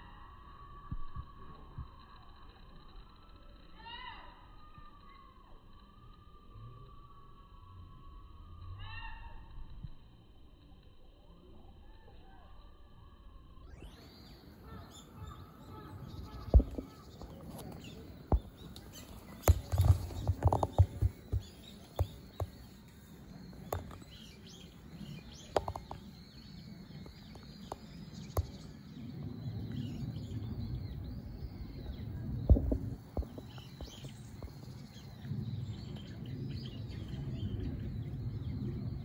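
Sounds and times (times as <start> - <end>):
low background rumble: 0.0 - 39.0
small birds chirping: 13.5 - 39.0.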